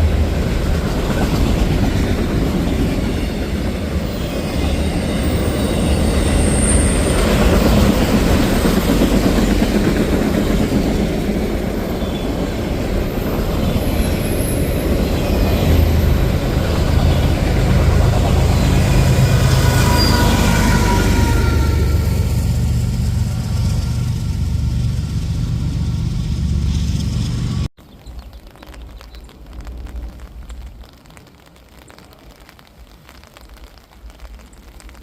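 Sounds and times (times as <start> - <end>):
freight train rumbling on rails: 0.0 - 27.7
thin wheel squeals: 19.7 - 21.8.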